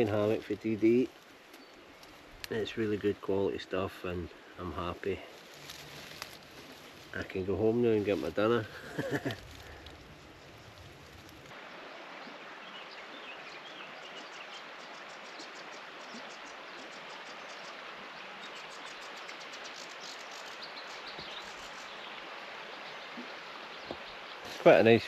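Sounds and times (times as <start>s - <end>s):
outdoor background hiss: 0.0s - 25.0s
songbirds singing with high trills: 12.2s - 25.0s.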